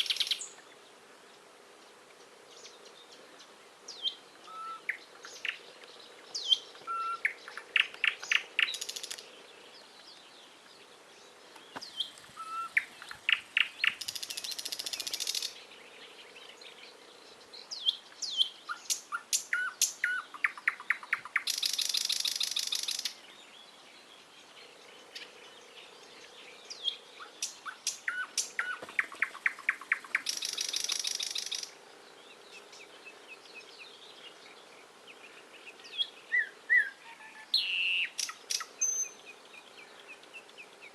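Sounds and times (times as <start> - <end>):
bird chirps: 0.0 - 0.8, 2.5 - 40.9
songbird singing: 0.0 - 40.9.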